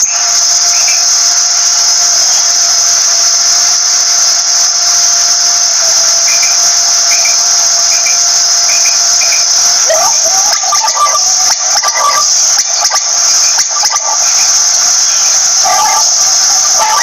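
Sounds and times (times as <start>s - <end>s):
cricket trill: 0.0s - 17.0s
faint hum: 0.0s - 17.0s
quail chirps: 8.0s - 17.0s.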